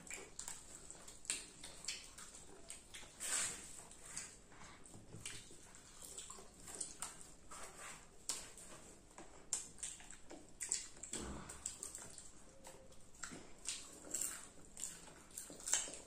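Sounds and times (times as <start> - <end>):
popcorn being chewed: 0.0 - 16.0
wet mouth clicks: 9.5 - 16.0.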